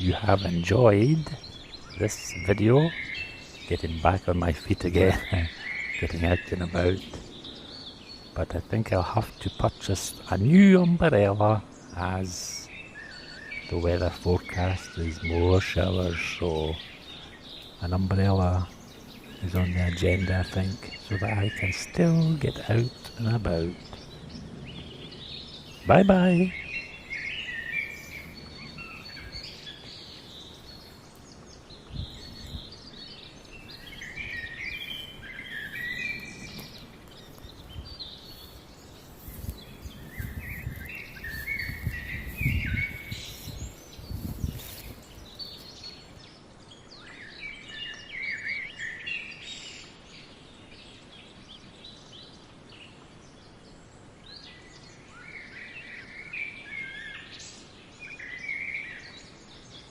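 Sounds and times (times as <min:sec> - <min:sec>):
songbirds singing and chirping: 0:00.0 - 0:59.9
low rumbles: 0:18.7 - 0:46.0.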